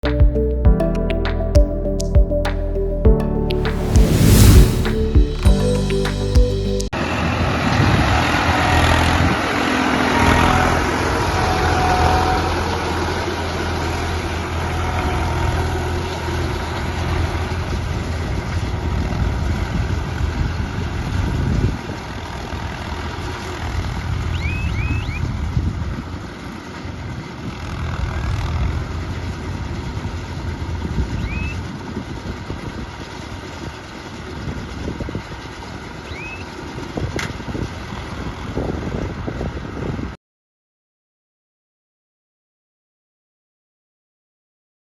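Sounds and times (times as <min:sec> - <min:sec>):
short high chirps: 0:00.8 - 0:06.9
tractor engine running: 0:08.8 - 0:38.6.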